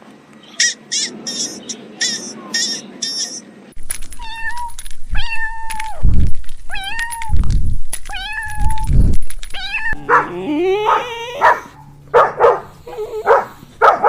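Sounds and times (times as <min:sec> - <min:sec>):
high-pitched chirping: 0:00.6 - 0:03.5
cat meowing: 0:04.2 - 0:06.1, 0:06.7 - 0:07.4, 0:08.1 - 0:08.9, 0:09.5 - 0:11.7.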